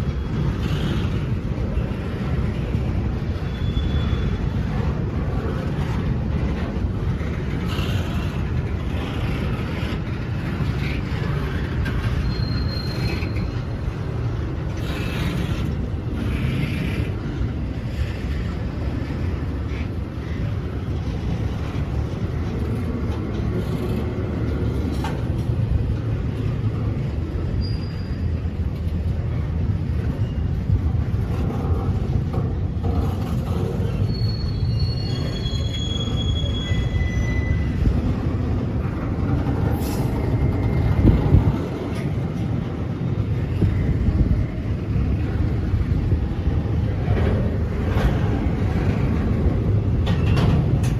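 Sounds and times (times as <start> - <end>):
train wheels rumbling on rail: 0.0 - 50.9
high-pitched wheel squeals: 3.4 - 4.6, 11.9 - 13.9, 27.5 - 28.6, 33.6 - 38.1.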